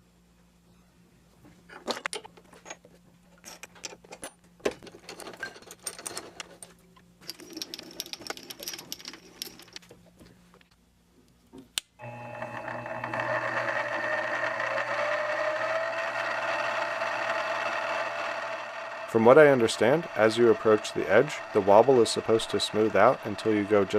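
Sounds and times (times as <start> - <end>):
metal tooling clicking and rattling: 3.4 - 9.9.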